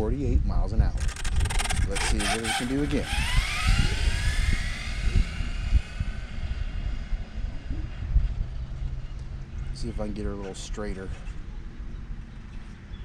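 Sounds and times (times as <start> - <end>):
wind rumble on microphone: 0.0 - 13.0
rc car motor whine: 1.0 - 9.9.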